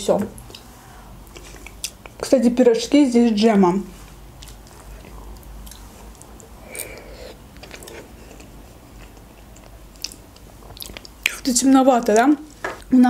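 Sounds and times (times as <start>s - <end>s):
chewing soft food: 0.4s - 2.2s, 4.2s - 12.3s
wet mouth clicks: 1.3s - 2.2s, 4.4s - 11.5s.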